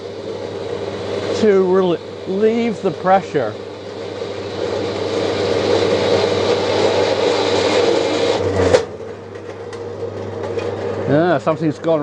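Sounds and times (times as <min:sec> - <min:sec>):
motor hum: 0:00.0 - 0:12.0
bandsaw cutting metal: 0:01.2 - 0:09.4.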